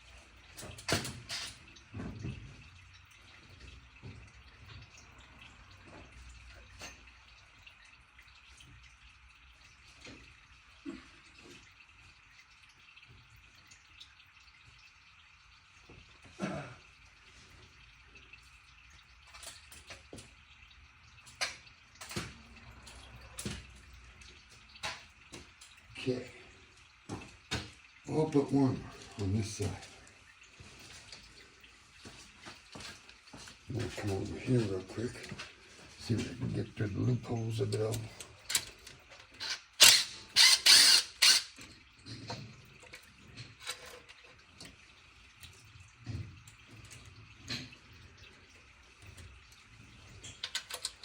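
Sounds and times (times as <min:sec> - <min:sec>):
ratcheting and metal clatter: 0:38.5 - 0:41.6, 0:50.3 - 0:51.0
hand tools clicking on metal bolts: 0:39.4 - 0:41.5.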